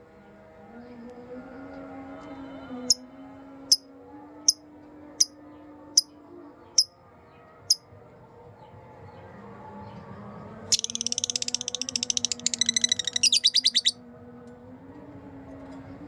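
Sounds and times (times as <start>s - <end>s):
bird chirping sharply: 10.7s - 14.0s.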